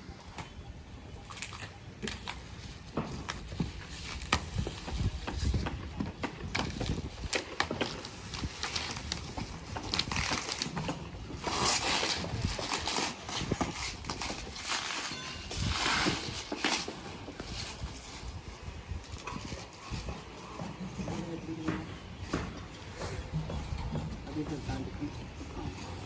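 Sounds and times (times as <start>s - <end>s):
parts and tools clattering: 7.0s - 18.2s.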